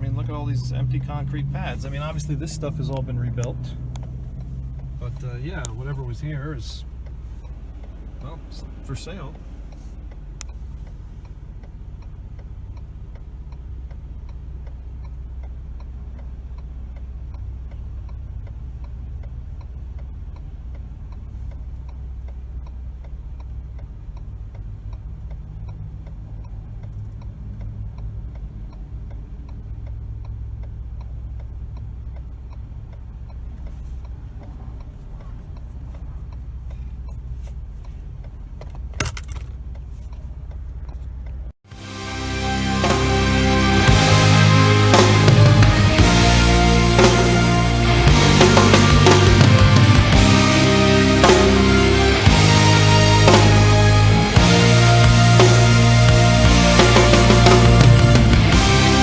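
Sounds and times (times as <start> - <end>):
car driving rumble inside cabin: 0.0 - 41.6
faint ticks: 9.3 - 38.8.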